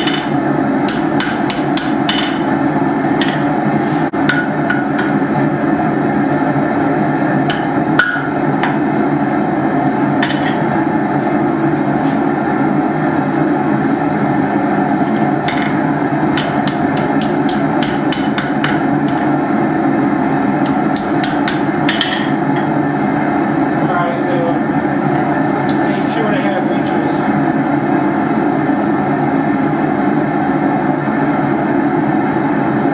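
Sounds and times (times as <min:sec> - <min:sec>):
hammer striking hot steel: 0:00.0 - 0:02.5, 0:07.4 - 0:08.8, 0:15.5 - 0:19.4, 0:20.6 - 0:22.7
forge droning: 0:00.0 - 0:32.9.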